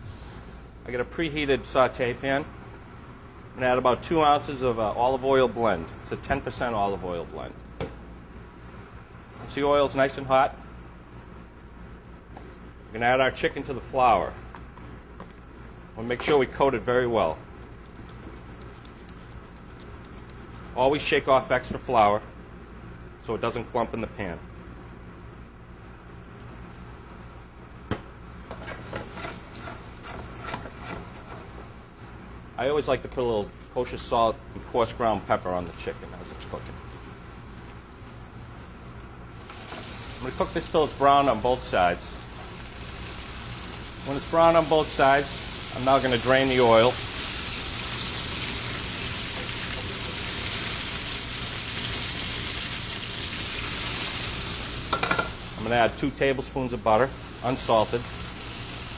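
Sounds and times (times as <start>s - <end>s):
chicken frying in hot oil: 33.0s - 58.9s.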